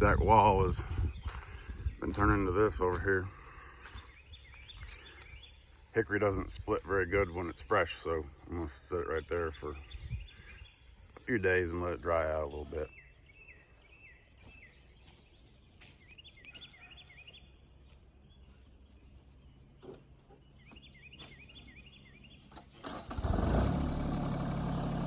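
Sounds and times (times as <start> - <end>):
bird chirping: 1.0 - 22.8
tractor engine starting and running: 22.5 - 25.0.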